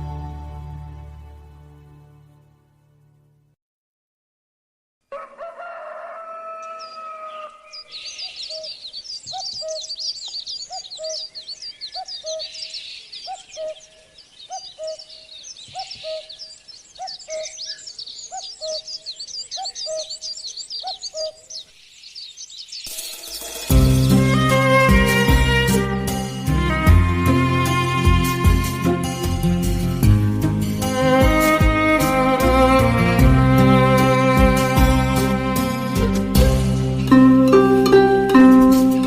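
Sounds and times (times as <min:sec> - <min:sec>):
birds chirping rapidly: 0:06.5 - 0:32.4.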